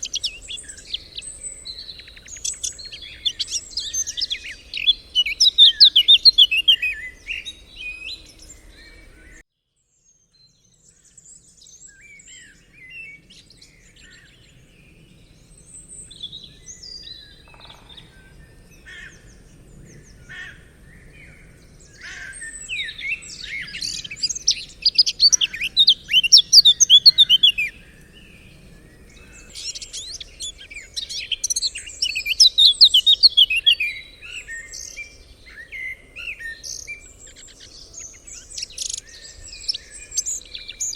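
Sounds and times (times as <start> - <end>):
birds singing and chirping: 0.0 - 9.4, 10.4 - 40.9.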